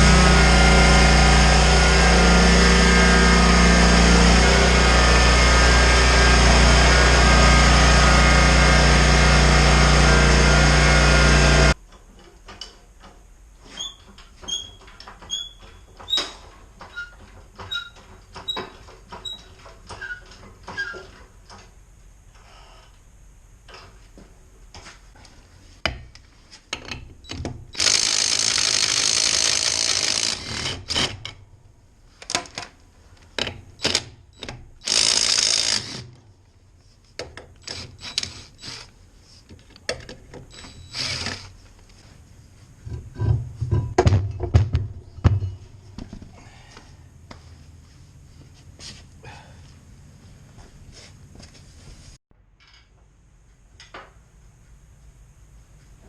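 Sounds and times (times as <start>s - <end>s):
small engine running: 0.0s - 11.8s
power tool bursts: 27.7s - 31.2s, 34.8s - 36.1s, 40.5s - 41.5s
tools clicking and knocking: 32.2s - 36.2s.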